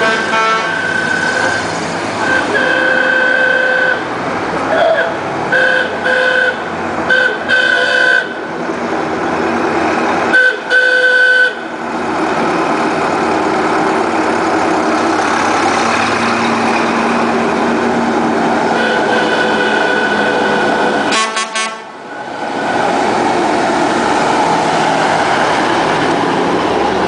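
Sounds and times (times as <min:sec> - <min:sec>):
truck horn honking: 0:00.0 - 0:01.3, 0:02.2 - 0:04.1, 0:04.7 - 0:08.5, 0:10.3 - 0:11.7, 0:18.7 - 0:22.0
truck engine running: 0:00.0 - 0:27.0.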